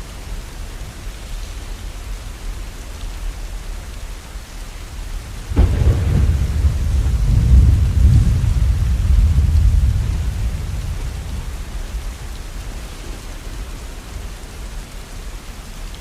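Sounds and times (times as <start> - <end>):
rain falling: 0.0 - 16.0
thunder clap and rumble: 5.0 - 15.5.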